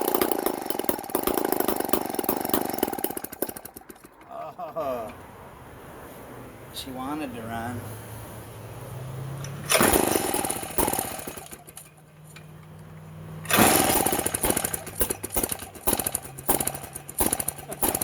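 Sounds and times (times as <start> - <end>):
chainsaw starting and running rough: 0.0 - 4.4, 9.5 - 12.0, 13.3 - 18.0.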